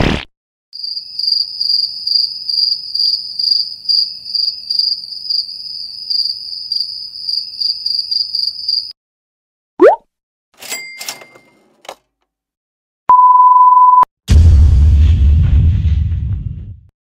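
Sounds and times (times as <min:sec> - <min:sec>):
crickets chirping: 0:00.8 - 0:08.9.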